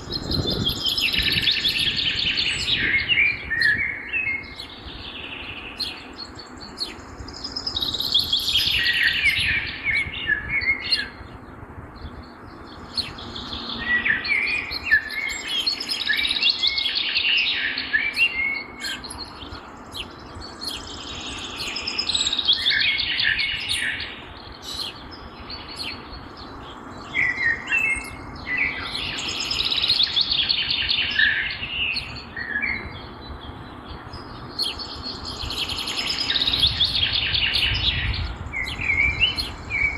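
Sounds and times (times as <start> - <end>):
songbird warbling: 12.5 - 33.1.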